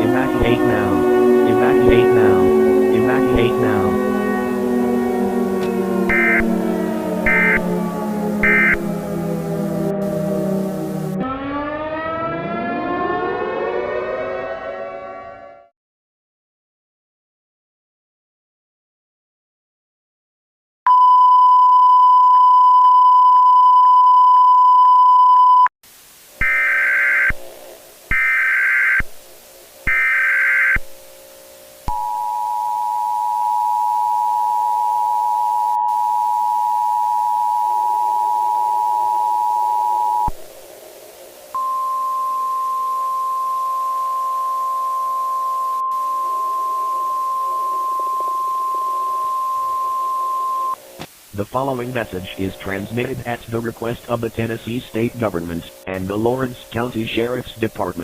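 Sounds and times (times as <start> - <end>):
higher steady alert tone: 0.0 - 11.2
steady attention tone: 0.0 - 11.2, 26.4 - 57.4
faint low drone: 0.0 - 15.7
loud steady beep: 6.0 - 6.6, 7.2 - 7.7, 8.4 - 8.9, 20.9 - 25.7, 26.4 - 27.4, 28.1 - 29.0, 29.9 - 30.8, 31.9 - 40.3, 41.6 - 50.8
screeching data signal bursts: 6.1 - 6.5, 7.3 - 7.6, 8.4 - 8.8, 26.4 - 27.4, 28.1 - 29.1, 29.8 - 30.8.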